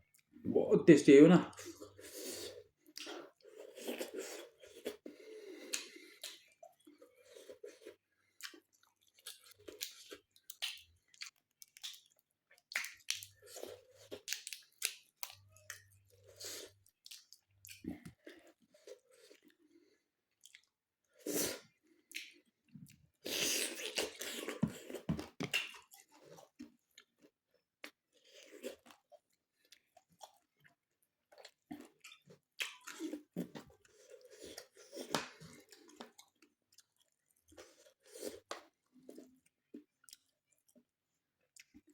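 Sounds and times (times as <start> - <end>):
person chewing food: 0.0 - 0.4, 1.5 - 41.9.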